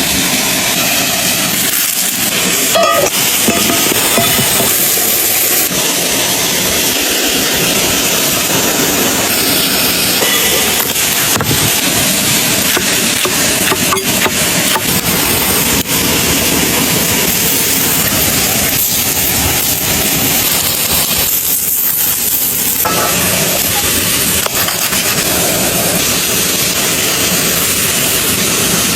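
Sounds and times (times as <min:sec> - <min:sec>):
running water rushing: 0:00.0 - 0:28.9.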